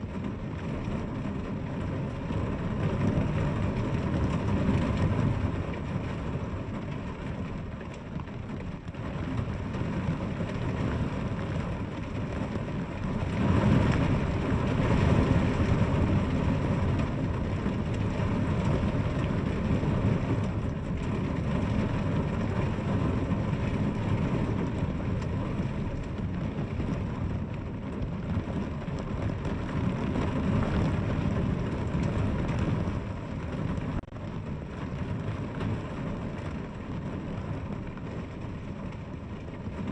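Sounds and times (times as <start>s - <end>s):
heavy rainfall: 0.0s - 39.9s.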